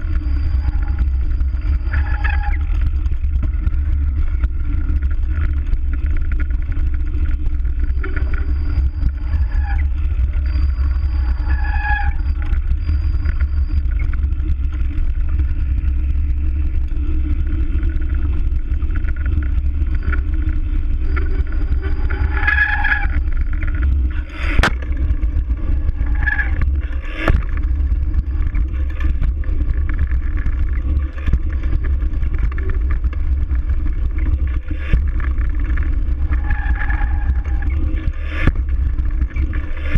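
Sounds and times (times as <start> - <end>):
wind and riding noise: 0.0 - 39.9.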